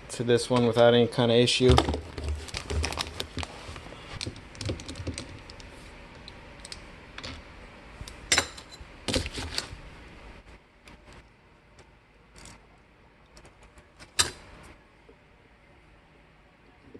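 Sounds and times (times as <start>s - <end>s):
plastic parts clattering: 1.6s - 3.5s
plastic parts being handled: 1.6s - 5.7s.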